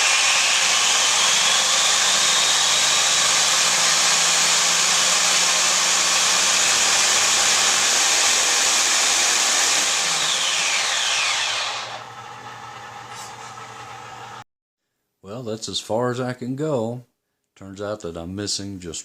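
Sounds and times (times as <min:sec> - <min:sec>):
electric motor tool running: 0:00.0 - 0:14.4.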